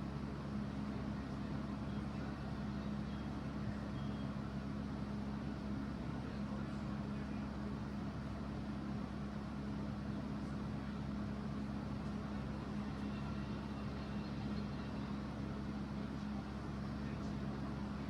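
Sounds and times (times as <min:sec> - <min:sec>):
steady machine hum: 0:10.8 - 0:18.0.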